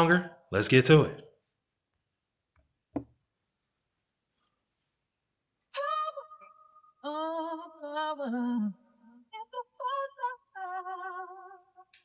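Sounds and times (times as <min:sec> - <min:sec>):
woman singing: 0:05.7 - 0:12.0.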